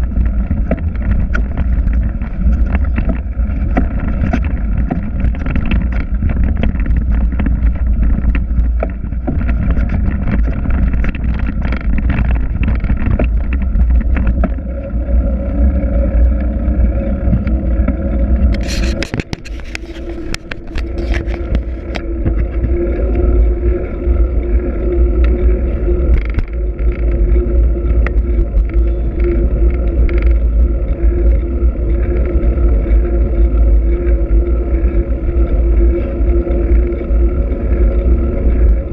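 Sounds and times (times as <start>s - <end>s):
bike rattling and clicking: 0.0s - 38.9s
steady low hum: 0.0s - 38.9s
wind buffeting microphone: 0.0s - 38.9s
sharp scrapes: 18.5s - 21.9s.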